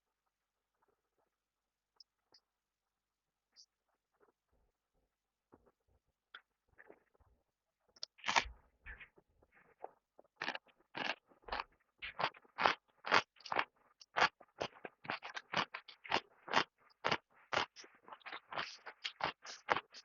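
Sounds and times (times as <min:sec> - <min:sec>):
crisp chewing: 0:08.0 - 0:08.5, 0:10.3 - 0:20.0.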